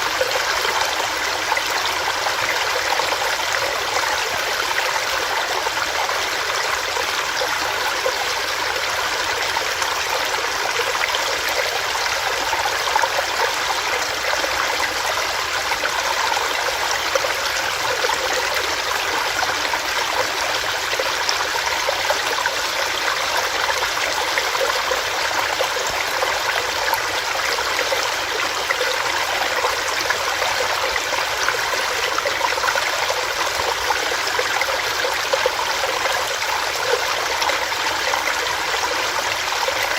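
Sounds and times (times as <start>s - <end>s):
stream splashing over rocks: 0.0s - 39.9s.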